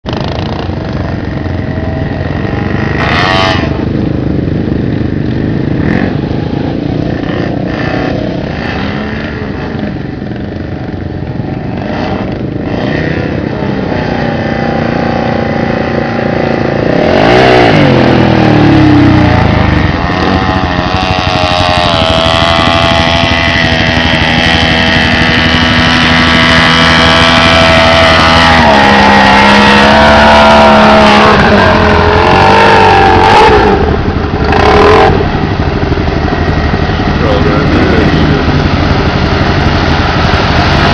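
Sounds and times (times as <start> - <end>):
truck engine revving: 11.6 - 40.9.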